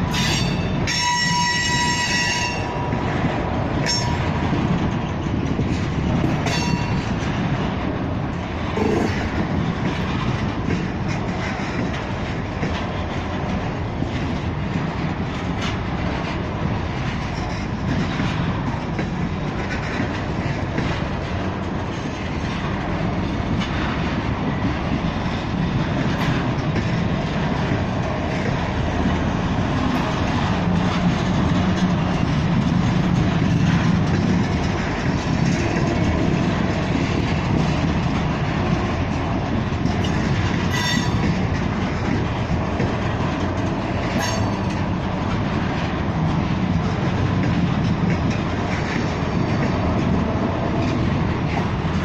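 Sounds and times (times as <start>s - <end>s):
train wheels rumbling on rails: 0.0s - 52.0s
high-pitched wheel squeal: 40.7s - 41.2s.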